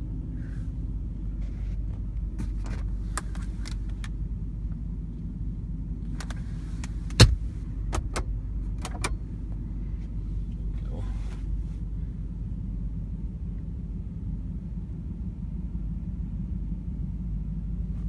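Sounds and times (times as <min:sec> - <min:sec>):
engine idling rumble: 0:00.0 - 0:18.0
light clicks of cab fittings: 0:01.3 - 0:05.3, 0:06.0 - 0:11.7.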